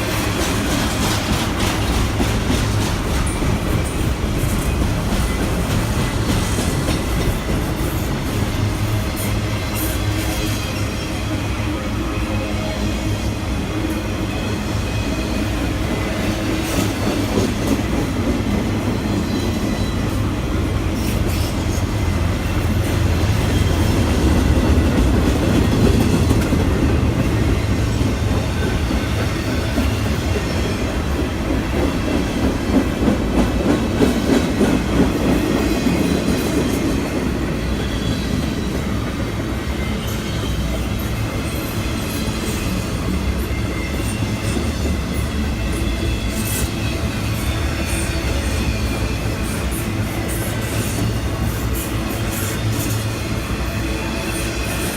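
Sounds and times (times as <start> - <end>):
train rumbling past: 0.0 - 54.9.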